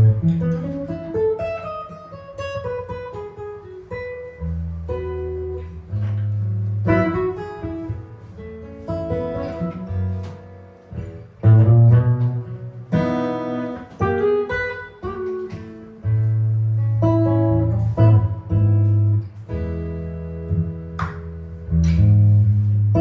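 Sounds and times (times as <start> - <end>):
low bass notes: 0.0 - 0.6, 4.4 - 8.3, 9.7 - 13.0, 16.0 - 23.0
jazz guitar: 0.0 - 23.0.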